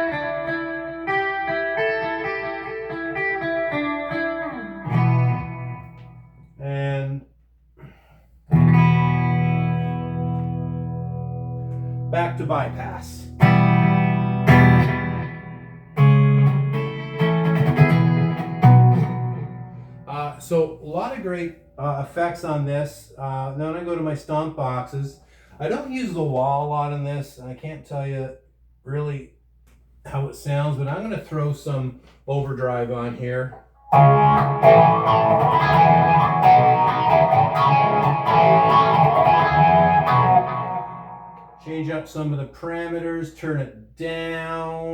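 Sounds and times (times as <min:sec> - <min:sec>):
electric guitar strummed chords: 0:00.0 - 0:06.4, 0:08.5 - 0:12.1, 0:13.3 - 0:20.1, 0:33.8 - 0:41.7.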